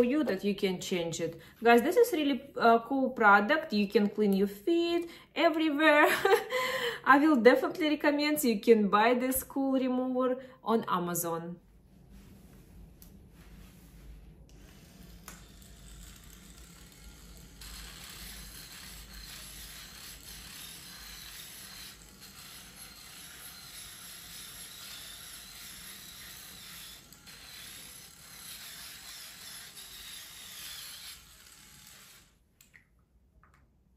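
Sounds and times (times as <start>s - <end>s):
small electric motor running: 14.5s - 32.4s.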